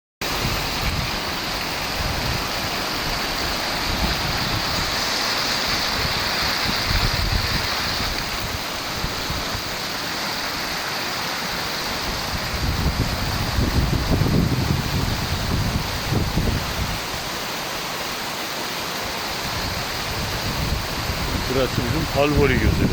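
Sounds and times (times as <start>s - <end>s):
stream water rushing: 0.2s - 22.9s.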